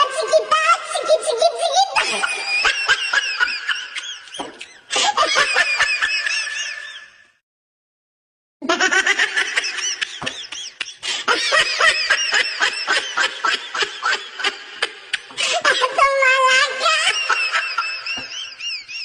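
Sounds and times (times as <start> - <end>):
person laughing heartily: 2.0 - 7.1, 8.6 - 16.0, 16.7 - 19.0.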